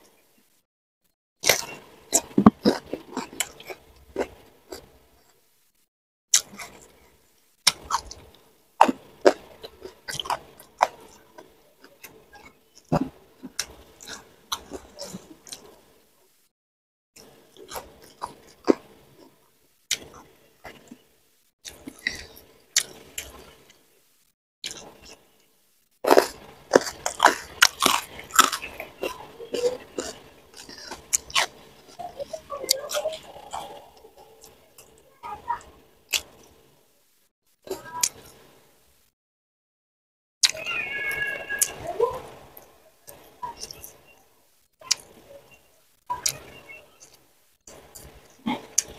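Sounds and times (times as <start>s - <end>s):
wet chewing and lip smacks: 1.4s - 4.9s, 7.6s - 15.8s, 26.0s - 35.0s, 36.1s - 36.5s
food crunching: 1.4s - 5.4s, 6.3s - 7.0s, 7.6s - 15.9s, 21.6s - 23.8s, 26.0s - 36.8s, 40.4s - 48.9s.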